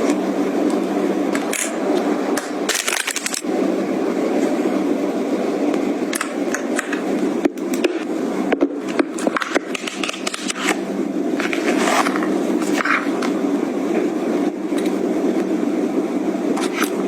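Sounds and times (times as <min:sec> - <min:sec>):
rustling and scraping of objects: 0:11.4 - 0:13.4.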